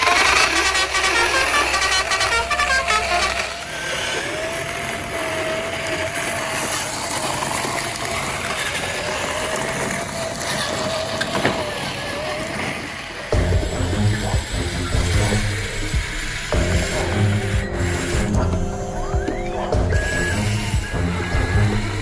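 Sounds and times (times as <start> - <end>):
small electric motor whining: 0.0 - 22.0
rattling hiss: 10.0 - 22.0
music: 13.4 - 22.0.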